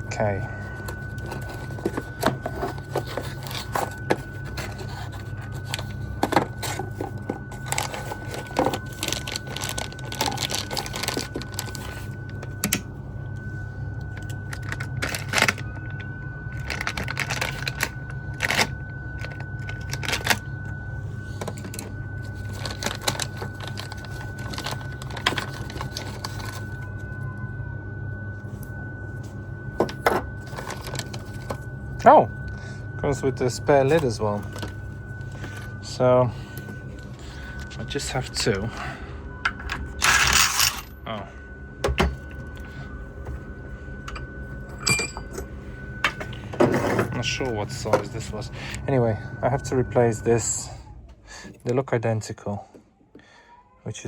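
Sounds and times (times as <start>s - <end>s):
low hum: 0.0s - 54.0s
cardboard parcel being opened: 0.6s - 12.6s, 21.4s - 27.0s, 29.8s - 31.7s
packaging rustling and clicking: 0.8s - 12.8s, 14.1s - 15.7s, 16.5s - 20.5s, 21.4s - 26.8s, 29.8s - 31.7s
faint high tone: 52.2s - 54.0s.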